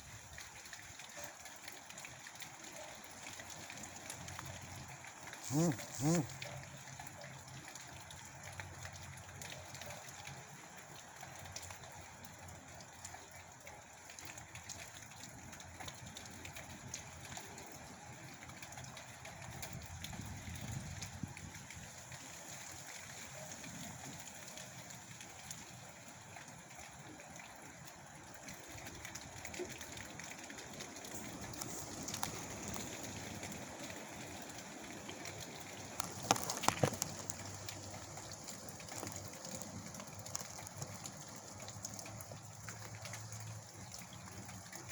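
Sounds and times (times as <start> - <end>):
rain: 0.0 - 44.9
wind: 0.0 - 44.9
small ticks: 31.1 - 33.8, 34.5 - 44.9.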